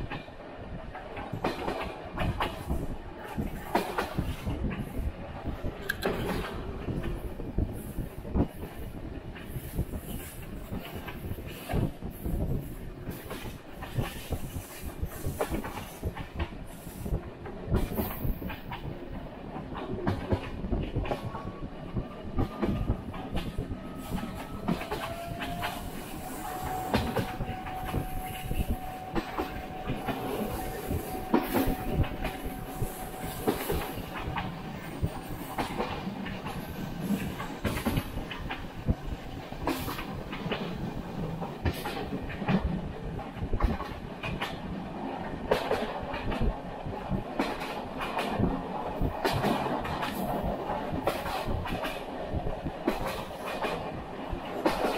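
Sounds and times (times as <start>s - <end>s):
train rumbling on rails: 0.0s - 54.9s
wheels clickety-clack: 19.5s - 44.7s, 45.5s - 54.9s.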